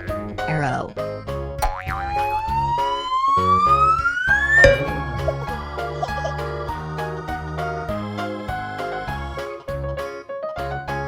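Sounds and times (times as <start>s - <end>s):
bouncy children's music: 2.3s - 9.6s
rising whistle: 2.6s - 5.6s.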